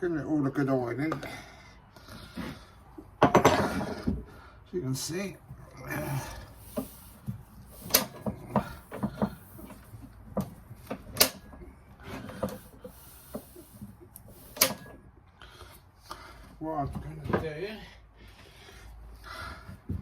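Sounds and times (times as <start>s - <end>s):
hand tools clicking and tapping: 6.7s - 15.0s.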